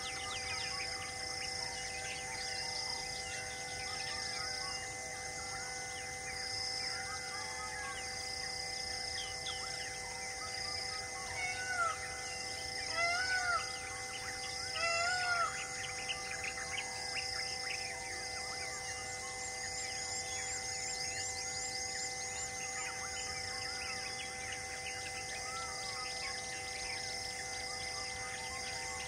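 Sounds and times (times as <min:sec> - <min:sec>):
birds chirping and calling: 0:00.0 - 0:04.8, 0:11.2 - 0:17.9
pulsing high buzz: 0:00.0 - 0:29.0
loud arching bird calls: 0:11.2 - 0:17.8.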